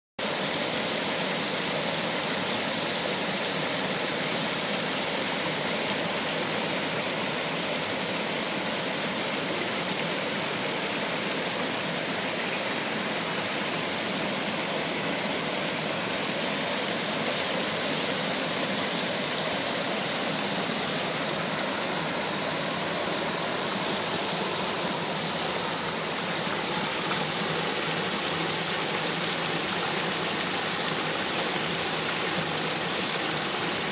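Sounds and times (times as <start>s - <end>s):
waterfall and stream rushing: 0.2s - 33.9s.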